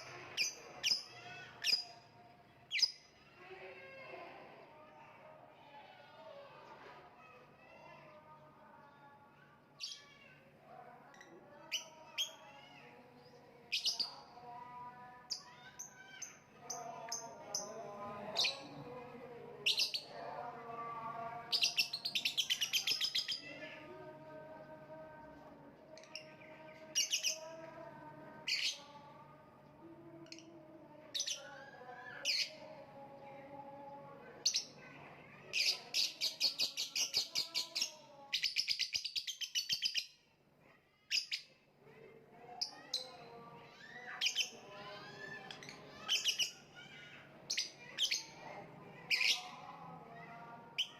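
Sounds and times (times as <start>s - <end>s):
lovebird chirping and chattering: 35.6s - 40.1s.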